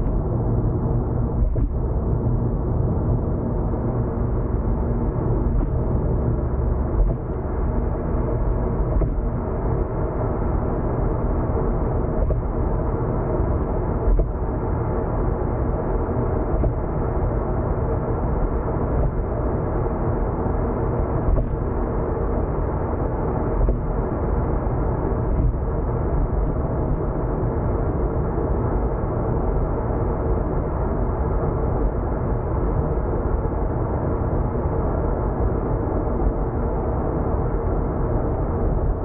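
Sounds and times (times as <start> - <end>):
road and engine rumble: 0.0 - 39.0.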